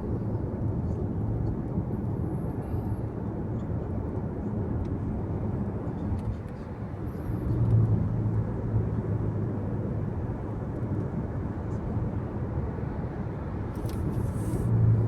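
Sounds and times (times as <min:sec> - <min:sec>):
car cabin road noise: 0:04.6 - 0:15.0.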